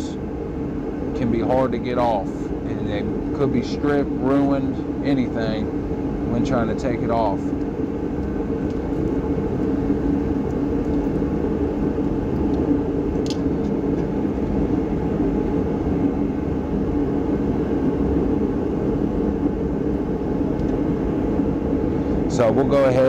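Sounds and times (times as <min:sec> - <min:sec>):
mechanical drone: 0:00.0 - 0:23.0.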